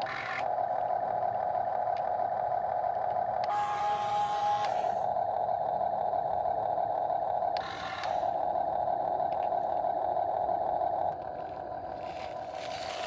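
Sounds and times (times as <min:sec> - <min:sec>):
small electric motors whining: 0:00.0 - 0:01.4, 0:03.1 - 0:05.1, 0:07.3 - 0:13.0.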